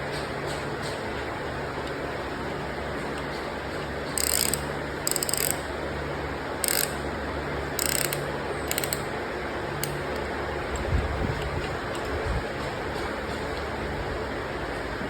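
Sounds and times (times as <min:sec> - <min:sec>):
ratchet wrench clicking: 0:04.0 - 0:05.7, 0:06.6 - 0:07.1, 0:07.7 - 0:09.2, 0:09.8 - 0:10.3.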